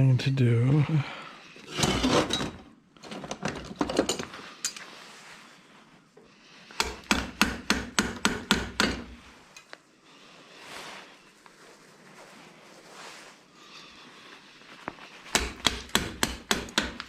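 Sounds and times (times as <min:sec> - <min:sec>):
hammer striking scrap metal: 0:15.4 - 0:17.0.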